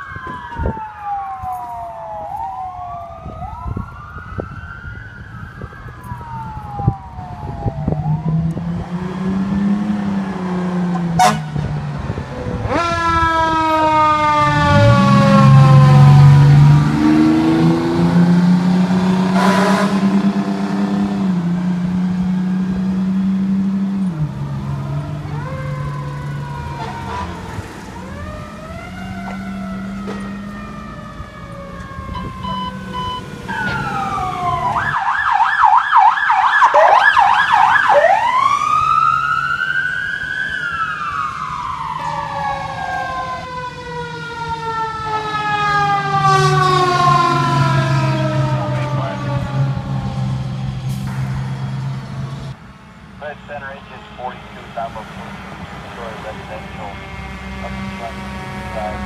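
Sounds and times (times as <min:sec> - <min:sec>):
fire engine sirens wailing: 0:00.0 - 0:59.0
low steady horn: 0:11.2 - 0:11.6, 0:19.3 - 0:20.3, 0:26.6 - 0:27.6, 0:53.4 - 0:59.0
siren fast yelp: 0:25.2 - 0:43.8.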